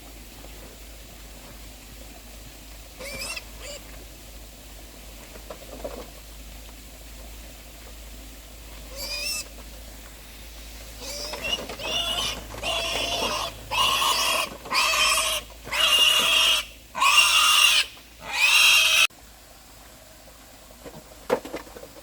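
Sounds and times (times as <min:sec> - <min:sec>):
piglets squealing: 0:03.0 - 0:03.8, 0:08.9 - 0:09.5, 0:11.0 - 0:19.1.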